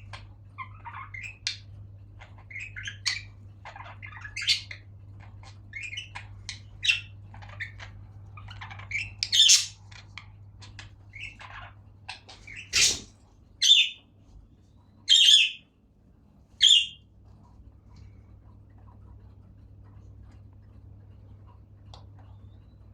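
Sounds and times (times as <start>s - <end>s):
budgerigars chirping and chattering: 0.1s - 14.0s, 15.0s - 15.7s, 16.6s - 17.0s
loud bird squawks: 8.9s - 9.8s, 12.4s - 14.0s, 15.1s - 15.6s, 16.6s - 17.0s.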